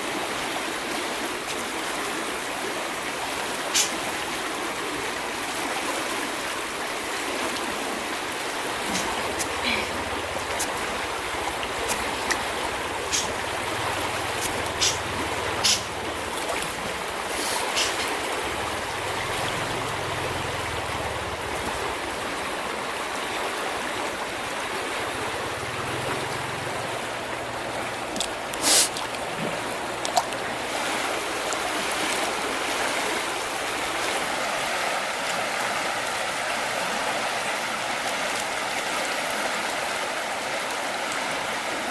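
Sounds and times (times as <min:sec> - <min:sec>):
river water rushing: 0:00.0 - 0:41.9
short sharp clicks: 0:15.6 - 0:15.9.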